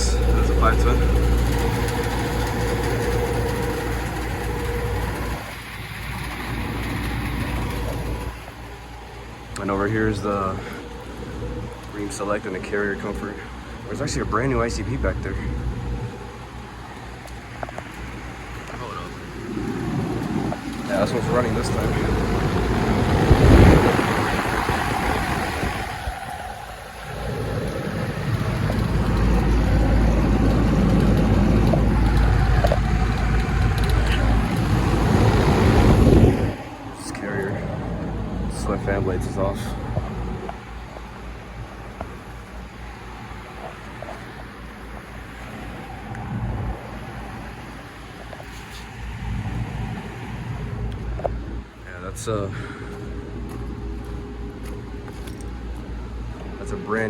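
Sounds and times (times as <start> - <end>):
air conditioner compressor hum: 0.0 - 57.0
condenser fan: 0.0 - 57.0.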